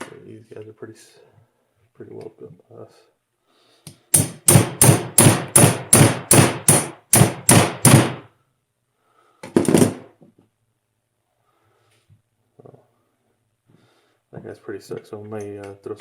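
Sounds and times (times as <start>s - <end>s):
hammer striking metal wrench: 3.9s - 8.0s.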